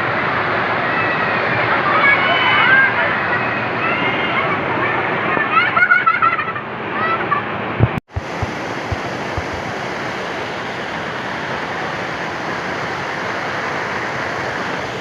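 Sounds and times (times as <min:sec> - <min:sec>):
soft low thumps: 0:07.8 - 0:09.6
waterfall rushing: 0:08.1 - 0:15.0.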